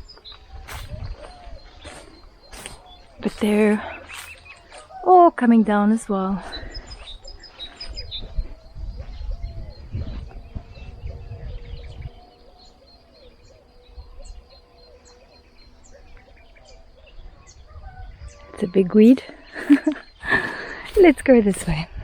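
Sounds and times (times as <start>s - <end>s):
thin high chirps: 0.0s - 8.6s
birds singing repeated calls: 0.0s - 22.0s.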